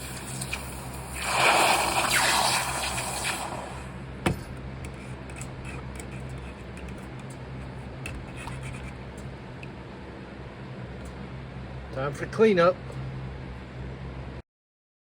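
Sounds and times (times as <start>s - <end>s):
water gushing and splashing: 0.0s - 4.0s.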